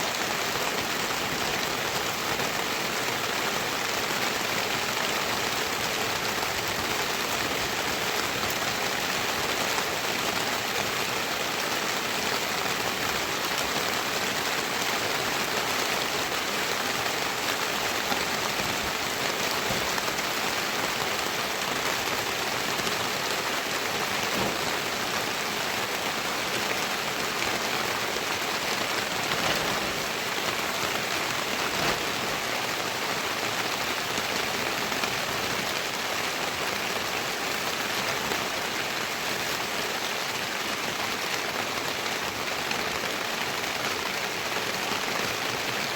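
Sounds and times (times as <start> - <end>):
heavy rain hissing: 0.0 - 45.9.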